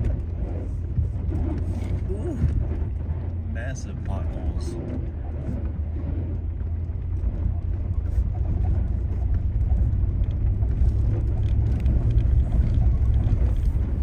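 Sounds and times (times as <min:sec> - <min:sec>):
off-road vehicle driving on dirt: 0:00.0 - 0:14.0.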